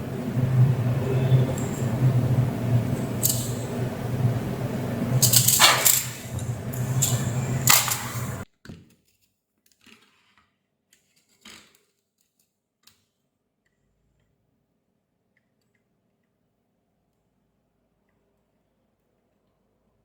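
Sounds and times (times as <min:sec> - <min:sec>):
machine hum: 0:00.0 - 0:08.4
rattling noise: 0:00.0 - 0:08.4.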